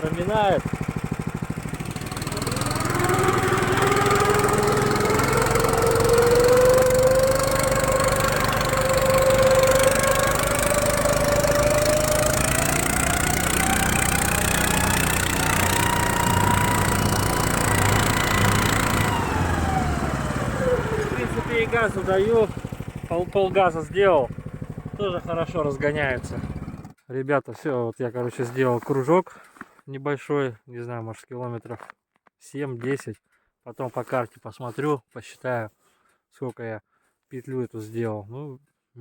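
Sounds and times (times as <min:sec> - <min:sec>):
snowmobile engine accelerating: 0:00.0 - 0:26.9.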